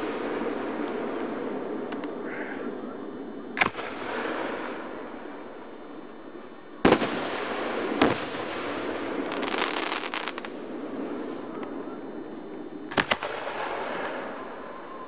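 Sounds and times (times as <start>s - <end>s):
rapid firework crackling: 3.1s - 14.8s.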